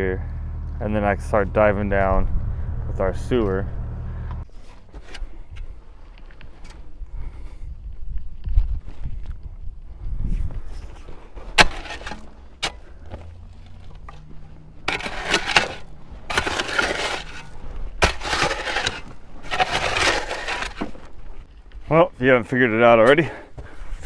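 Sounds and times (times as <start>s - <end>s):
excavator engine running: 0.0s - 4.5s
excavator bucket scraping dirt: 4.4s - 6.8s, 10.6s - 22.0s, 22.9s - 24.0s.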